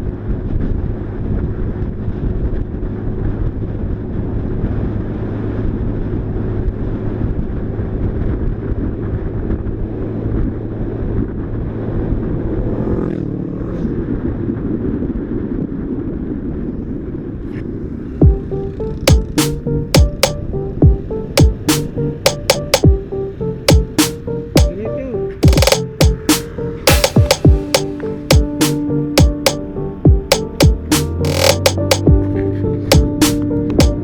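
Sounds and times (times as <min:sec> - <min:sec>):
music with sharp beats: 0:19.1 - 0:23.0, 0:23.7 - 0:24.8, 0:25.4 - 0:32.3, 0:32.9 - 0:34.0.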